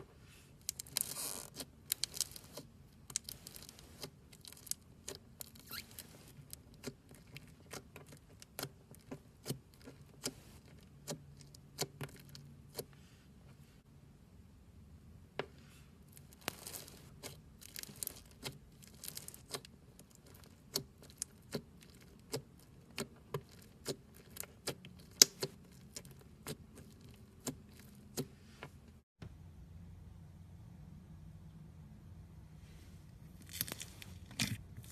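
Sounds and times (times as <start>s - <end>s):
soft crinkling: 0.1s - 13.6s, 16.0s - 29.0s, 32.8s - 34.9s
foam beads crackling and popping: 0.6s - 7.3s, 16.1s - 22.7s.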